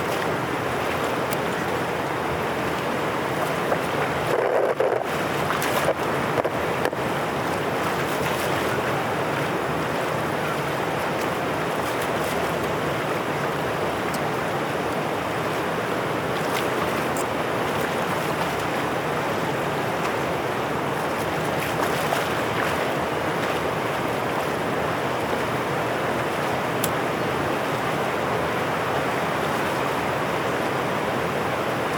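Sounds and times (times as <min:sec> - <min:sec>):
water rushing through outlet: 0:00.0 - 0:31.9.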